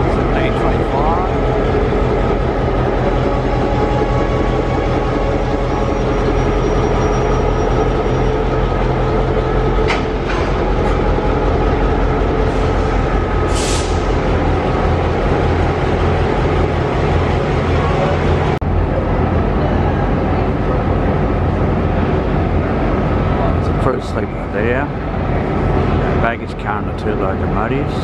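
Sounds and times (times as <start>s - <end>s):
train engine and wheels rumbling: 0.0s - 28.0s
short hiss of air: 13.5s - 14.1s.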